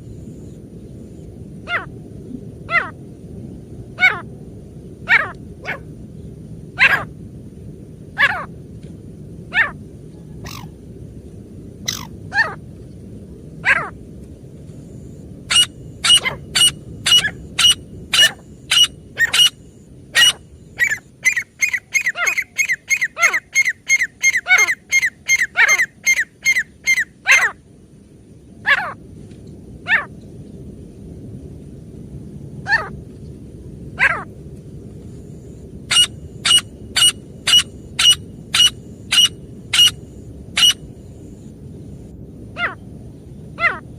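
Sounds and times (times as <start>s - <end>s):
francolin calling: 11.9s - 12.6s, 15.5s - 27.6s, 35.9s - 41.4s.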